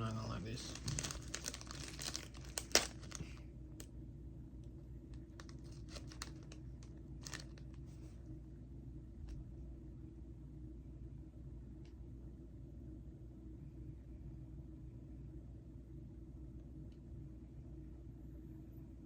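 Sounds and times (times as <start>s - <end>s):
plastic snack packet crinkling: 0.5s - 3.9s, 5.2s - 7.9s.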